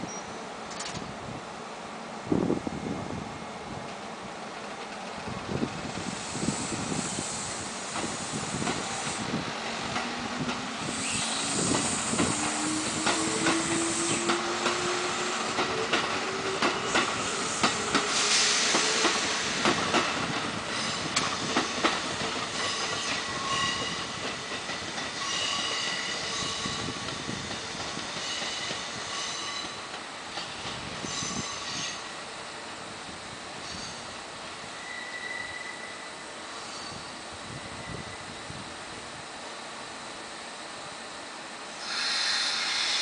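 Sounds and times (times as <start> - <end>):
train wheels clicking over rail joints: 7.9 - 32.0
train whine rising in pitch: 8.7 - 21.7.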